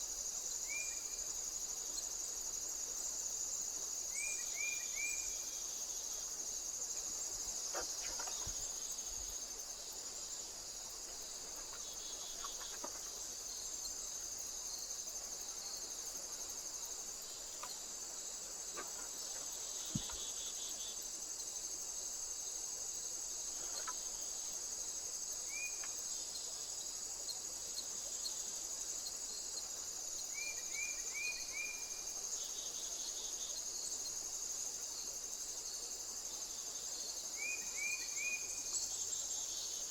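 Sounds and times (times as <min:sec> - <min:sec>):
crickets trilling: 0:00.0 - 0:39.9
faint ticks: 0:17.5 - 0:17.8, 0:23.6 - 0:24.1, 0:25.7 - 0:26.0.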